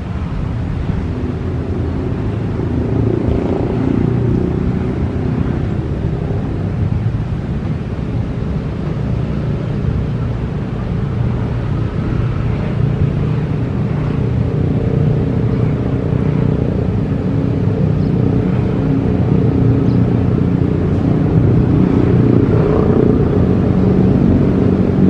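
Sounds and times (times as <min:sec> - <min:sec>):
electric train rumbling: 0:00.0 - 0:25.0.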